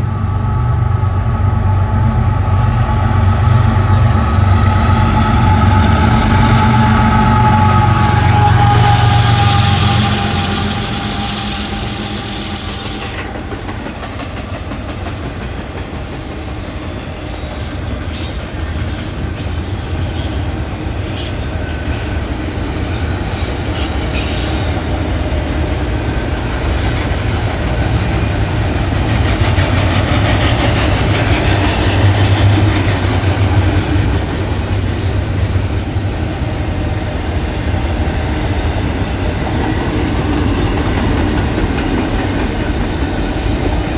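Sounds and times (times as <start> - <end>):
railroad cars rolling past: 0.0 - 43.9
high-pitched wheel noise: 1.5 - 13.9.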